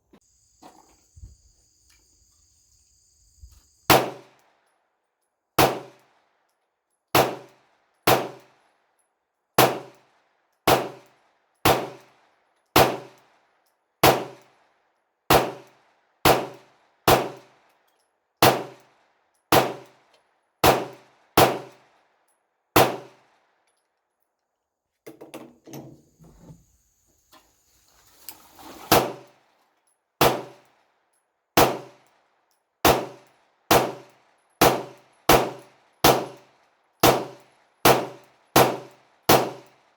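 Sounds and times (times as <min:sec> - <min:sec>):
pistol shots with echo: 0:03.9 - 0:04.4, 0:05.6 - 0:06.1, 0:07.1 - 0:08.6, 0:09.6 - 0:10.0, 0:10.6 - 0:12.1, 0:12.8 - 0:13.2, 0:14.0 - 0:14.4, 0:15.3 - 0:17.5, 0:18.4 - 0:18.8, 0:19.5 - 0:20.0, 0:20.6 - 0:21.8, 0:22.8 - 0:23.3, 0:30.2 - 0:30.6, 0:31.6 - 0:32.1, 0:32.8 - 0:39.7
small metallic clatter: 0:25.0 - 0:26.7.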